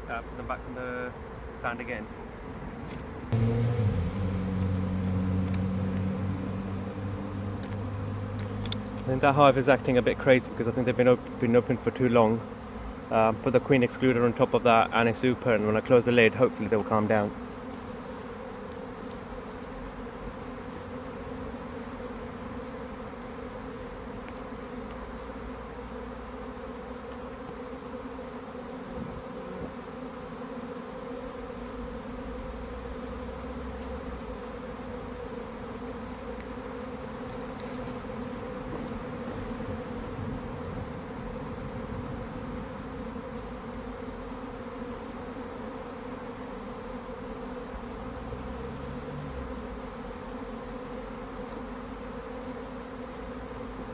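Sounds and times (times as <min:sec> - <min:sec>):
honeybees buzzing: 0:00.0 - 0:53.9
faint ticks: 0:05.4 - 0:06.1, 0:07.6 - 0:09.1.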